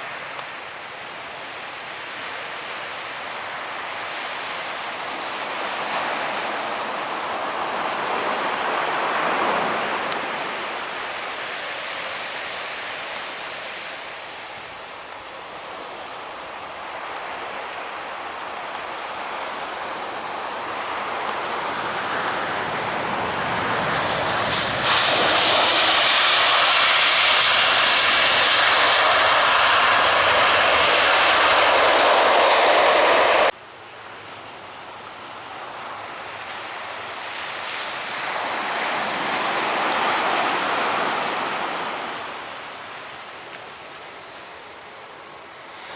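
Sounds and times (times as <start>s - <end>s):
aircraft engines roaring: 20.6s - 33.5s.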